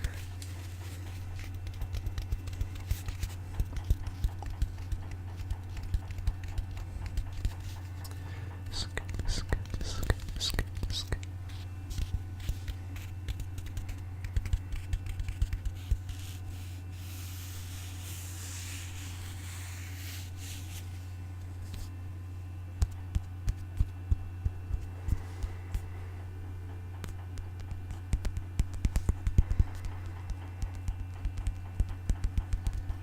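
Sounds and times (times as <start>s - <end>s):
scratching or rubbing: 0.0s - 8.0s, 8.7s - 22.0s
steady low hum: 0.0s - 33.0s.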